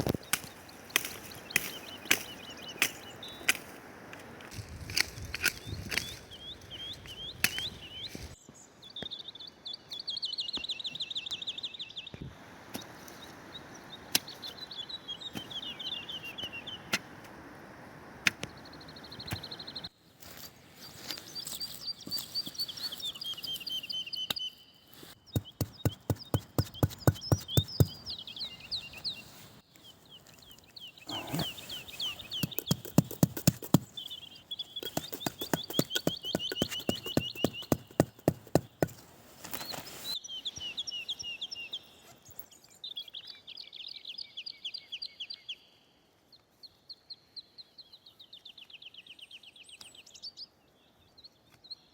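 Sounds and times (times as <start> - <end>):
songbird singing falling trills: 0.0 - 3.6, 4.9 - 17.0, 20.8 - 45.8
quick sharp knocks or crunches: 32.4 - 34.0, 34.8 - 39.0.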